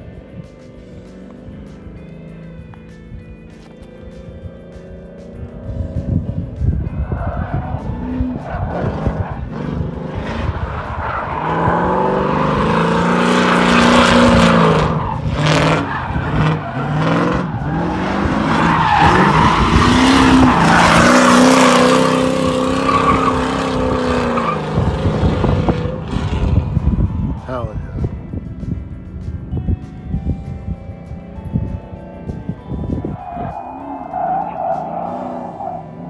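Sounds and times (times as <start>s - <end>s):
car engine revving: 0.0s - 29.2s, 31.2s - 36.0s
wind rumble on microphone: 5.4s - 33.6s
tyres squealing on pavement: 7.0s - 26.3s, 33.0s - 36.0s.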